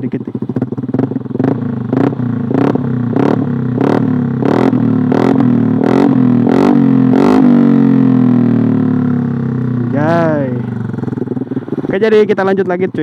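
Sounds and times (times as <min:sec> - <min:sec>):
scooter engine idling: 0:00.0 - 0:13.0
scooter engine revving: 0:00.0 - 0:13.0.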